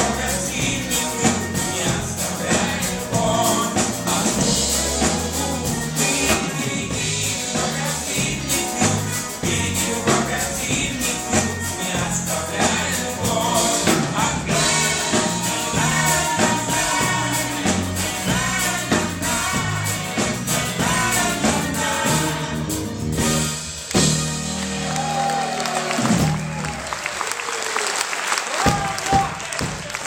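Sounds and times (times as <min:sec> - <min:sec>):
several voices singing: 0:00.0 - 0:23.5
live band playing: 0:00.0 - 0:27.6.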